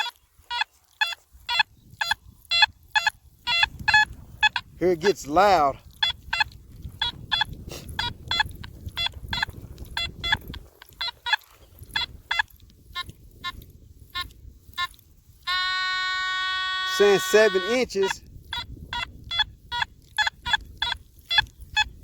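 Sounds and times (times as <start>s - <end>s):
metal detector beeps: 0.0s - 22.0s
metal detector steady tone: 0.0s - 22.0s.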